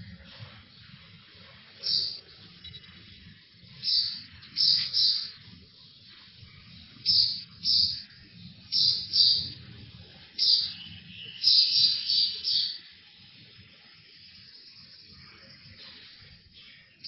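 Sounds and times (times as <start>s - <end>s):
bird chirping: 0.1s - 13.1s.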